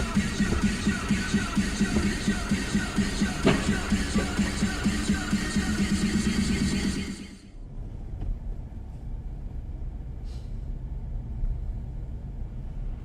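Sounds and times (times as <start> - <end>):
music: 0.0 - 7.5
car driving rumble: 0.0 - 13.0.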